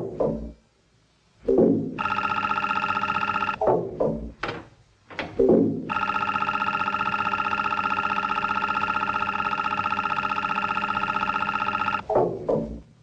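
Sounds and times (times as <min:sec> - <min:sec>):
fluttering electronic robot buzz: 0:05.9 - 0:12.0.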